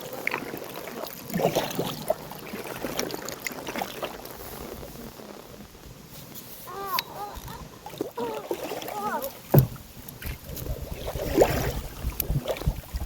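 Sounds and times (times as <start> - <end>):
paddle strokes and water splashing: 0.0 - 13.0
wind rumbling on microphone: 0.0 - 13.0
knock on kayak hull: 9.5 - 9.9.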